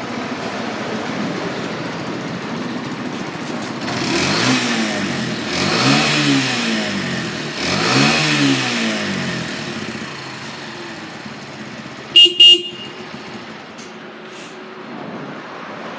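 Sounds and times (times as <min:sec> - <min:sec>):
motorcycle engine revving and idling: 0:00.0 - 0:13.9
motorcycle horn beeps: 0:12.0 - 0:13.5.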